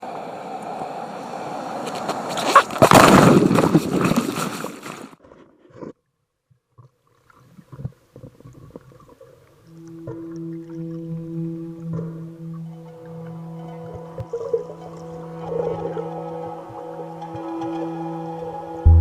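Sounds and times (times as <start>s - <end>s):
underwater bubbles: 6.8s - 12.7s.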